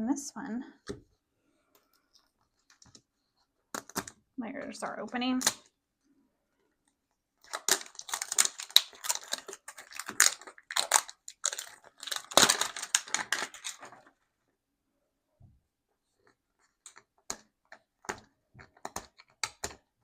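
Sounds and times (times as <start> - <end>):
packaging crinkling and ripping: 7.4 - 14.2.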